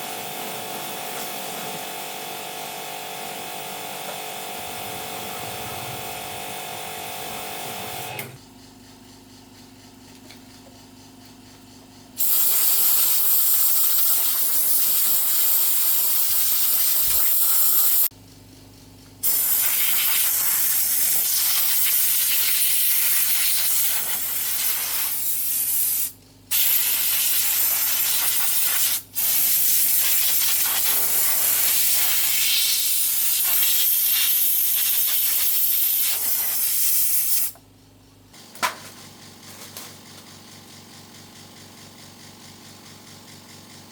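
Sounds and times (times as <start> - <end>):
compressed air hissing: 12.2 - 18.1, 19.2 - 37.6.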